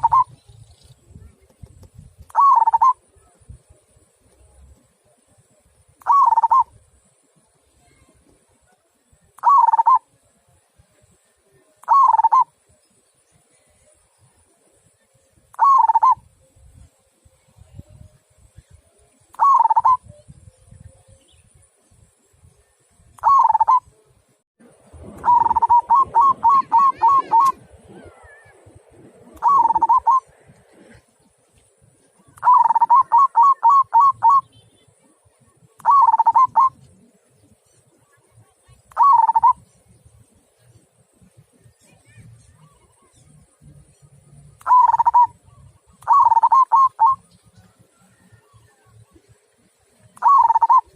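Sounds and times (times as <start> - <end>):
dove cooing: 0.0 - 0.4, 2.3 - 3.1, 6.0 - 6.8, 9.4 - 10.1, 11.8 - 12.5, 15.5 - 16.2, 19.3 - 20.2, 23.2 - 23.8, 25.2 - 31.1, 32.2 - 34.5, 35.8 - 37.2, 38.9 - 39.6, 44.6 - 48.5, 50.1 - 50.9.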